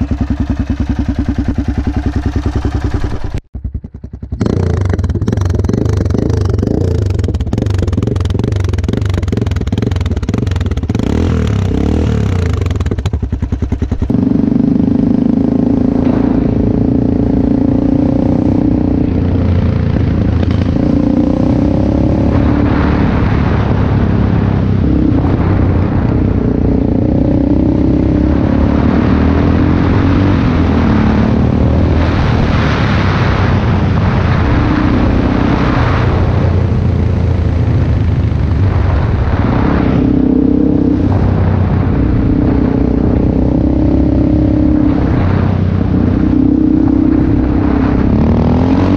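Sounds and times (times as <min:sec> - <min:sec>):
single-cylinder motorcycle engine running: 0:00.0 - 0:32.2.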